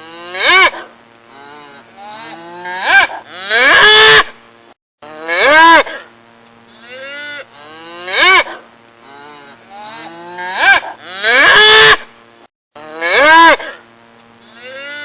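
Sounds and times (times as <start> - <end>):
cattle mooing: 0.0 - 4.1, 6.7 - 11.9, 14.5 - 15.0.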